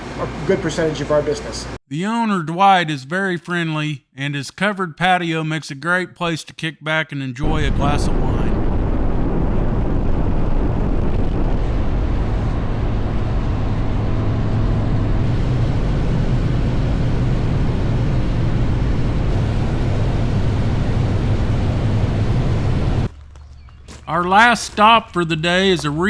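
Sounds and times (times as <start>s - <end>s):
motorcycle engine drone: 7.4s - 23.1s
road and wind noise: 8.2s - 23.9s.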